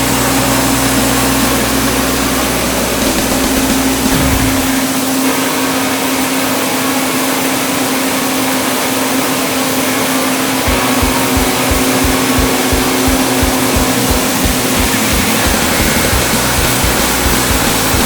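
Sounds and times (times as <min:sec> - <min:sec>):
band saw sawmill running: 0:00.0 - 0:05.4, 0:09.9 - 0:18.0
regular low thumping: 0:03.1 - 0:05.0, 0:10.7 - 0:17.6.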